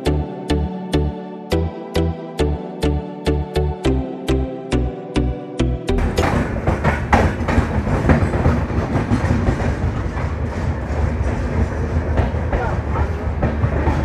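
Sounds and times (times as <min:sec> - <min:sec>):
train rumbling on track: 0:05.9 - 0:14.0
wheels clicking over rail joints: 0:05.9 - 0:14.0.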